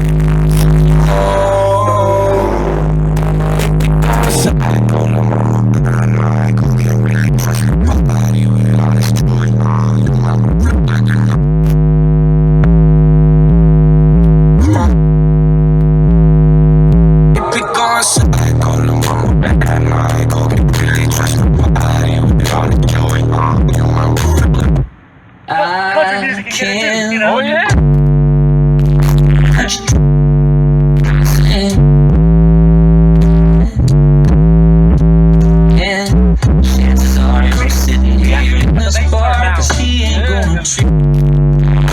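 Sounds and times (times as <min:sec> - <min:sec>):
deep bass hits: 0:00.0 - 0:17.4, 0:18.2 - 0:25.0, 0:27.7 - 0:41.9
held synth chord: 0:00.9 - 0:04.5
drums and hi-hats: 0:18.2 - 0:24.9, 0:37.5 - 0:41.1.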